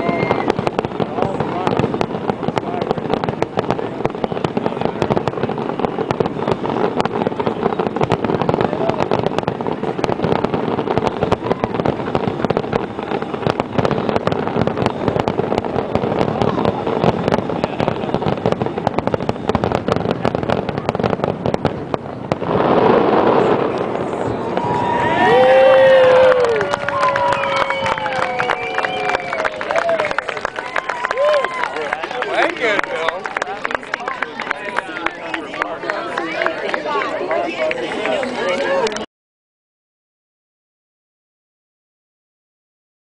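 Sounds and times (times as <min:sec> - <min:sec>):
crowd cheering: 0:00.0 - 0:01.8, 0:22.4 - 0:39.1
fireworks bursting and crackling: 0:00.0 - 0:39.1.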